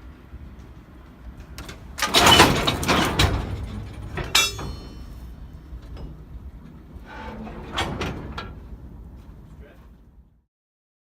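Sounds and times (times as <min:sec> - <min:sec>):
loud knocks and clanks: 0:02.0 - 0:05.2.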